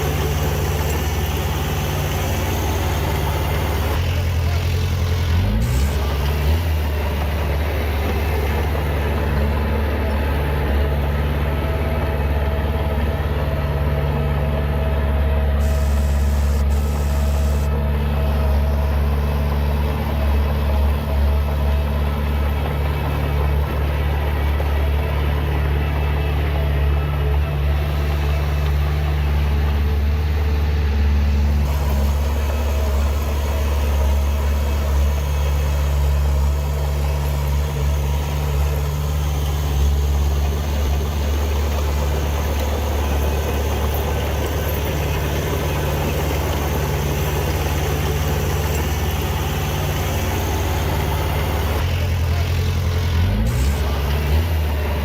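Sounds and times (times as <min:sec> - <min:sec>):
heavy diesel engine droning: 0:00.0 - 0:55.0.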